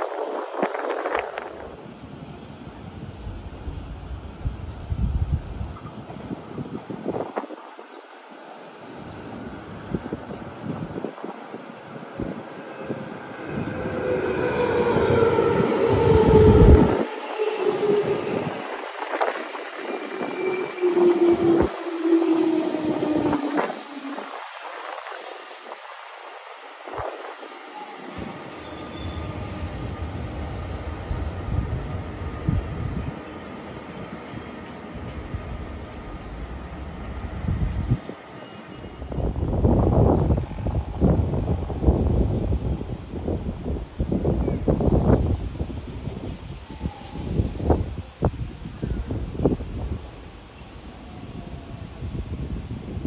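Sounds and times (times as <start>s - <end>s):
wheels rumbling on rail: 9.1s - 25.9s
high wheel squeal: 12.2s - 25.2s, 27.7s - 39.7s.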